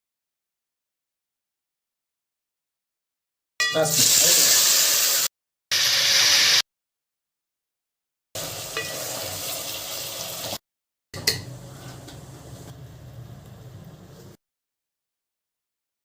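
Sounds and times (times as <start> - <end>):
food sizzling in a pan: 3.7 - 6.6, 8.4 - 10.6.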